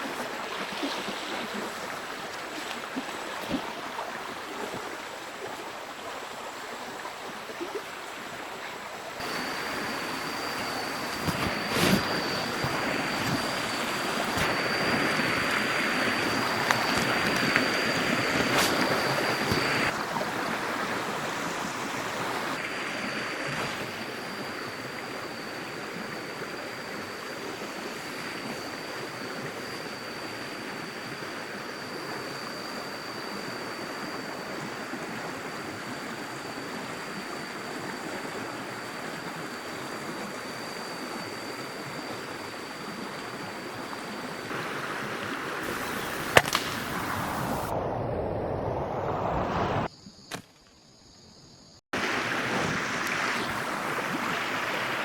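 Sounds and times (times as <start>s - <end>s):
stream water running: 0.0s - 47.8s, 51.9s - 55.0s
loud sharp snap: 46.2s - 47.5s.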